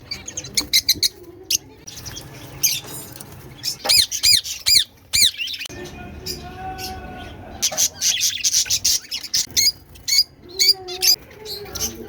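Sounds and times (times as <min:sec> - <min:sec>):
birds chirping: 0:00.0 - 0:12.0
birds squawking: 0:01.9 - 0:12.0.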